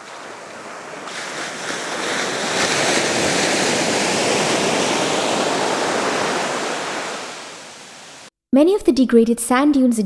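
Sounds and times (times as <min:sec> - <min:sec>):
waves breaking: 0:00.0 - 0:08.3.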